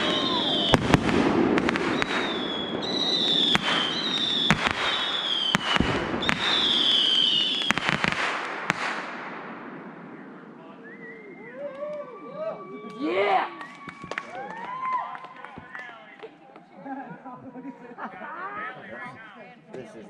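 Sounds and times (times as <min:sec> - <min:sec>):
firework whistles sliding down: 0:00.0 - 0:00.9, 0:01.9 - 0:07.8
firework bangs: 0:00.0 - 0:11.1.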